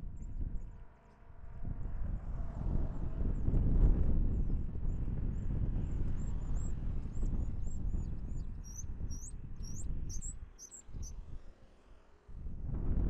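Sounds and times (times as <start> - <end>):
wind buffeting microphone: 0.0 - 11.6, 12.3 - 13.0
small birds chirping: 6.2 - 11.4.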